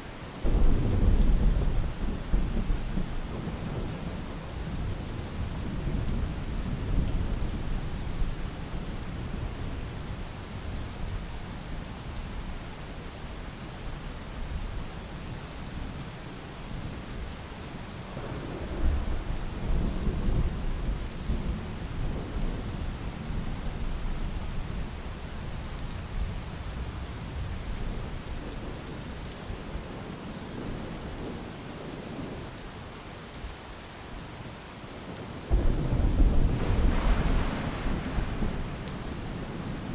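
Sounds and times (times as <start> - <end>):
low rolling thunder: 0.4 - 8.3, 18.1 - 24.3, 35.5 - 39.9
heavy rain hissing: 35.5 - 39.9.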